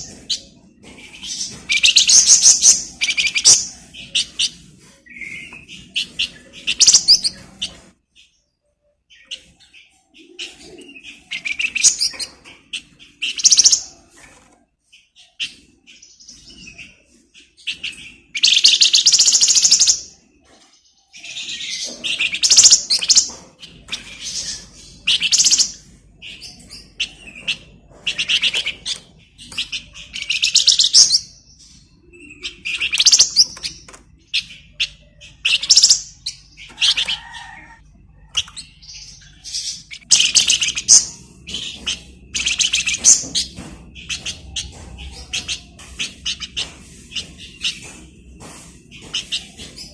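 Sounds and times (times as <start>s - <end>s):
songbird trilling and chattering: 0.0s - 7.8s, 21.2s - 37.5s, 38.2s - 49.9s.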